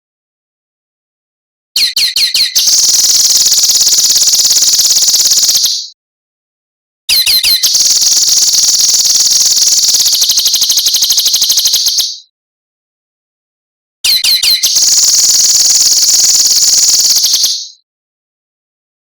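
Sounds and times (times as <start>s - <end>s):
songbird buzzing trill: 2.6s - 5.9s, 7.4s - 12.3s, 14.4s - 17.8s.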